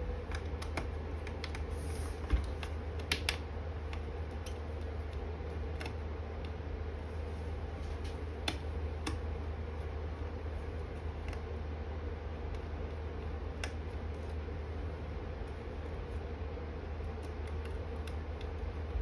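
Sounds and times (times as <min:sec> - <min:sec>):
low hum: 0:00.0 - 0:19.0
laptop parts clicking: 0:00.2 - 0:01.7, 0:02.4 - 0:06.6, 0:08.1 - 0:09.3.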